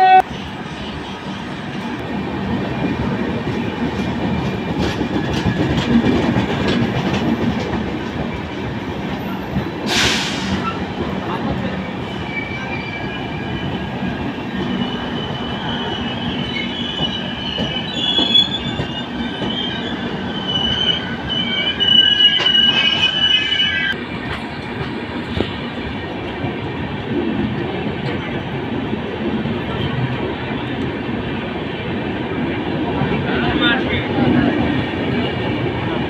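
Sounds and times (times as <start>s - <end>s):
train wheels rumbling on rails: 0.2s - 36.0s
metallic wheel squeal: 14.8s - 24.0s.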